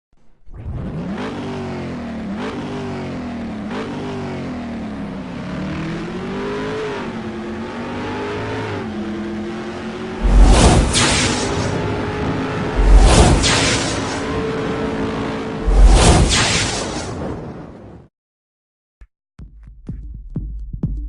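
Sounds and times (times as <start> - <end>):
car engine revving: 0.5 - 16.4.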